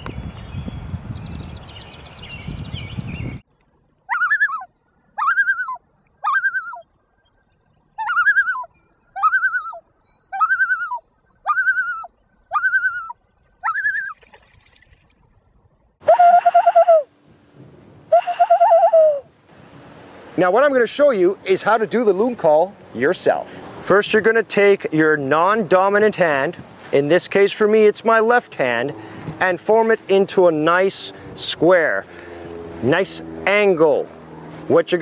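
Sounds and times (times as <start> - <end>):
wind and rustling: 0.0 - 9.2, 11.2 - 35.0
loon wavering calls: 4.0 - 14.2, 16.0 - 17.1, 18.1 - 19.3.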